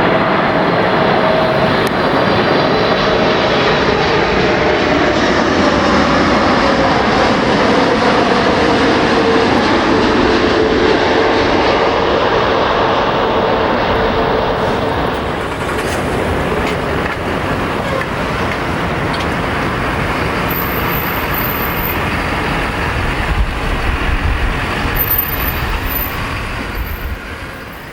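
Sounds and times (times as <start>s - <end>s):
faint engine whine: 0.0s - 27.9s
jet engines rumbling: 0.0s - 27.9s.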